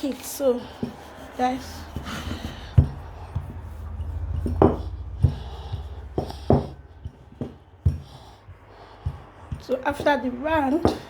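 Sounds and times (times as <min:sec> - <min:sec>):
steady low hum: 0:01.2 - 0:10.8
kitchen utensils knocking on worktop: 0:02.2 - 0:07.6.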